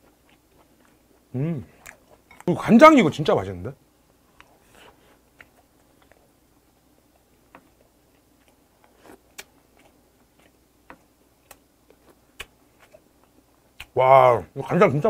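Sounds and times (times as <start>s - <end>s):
faint close-up chewing: 0.0s - 2.5s, 4.3s - 14.0s
mouth clicks and smacks: 9.1s - 13.0s, 13.7s - 14.0s.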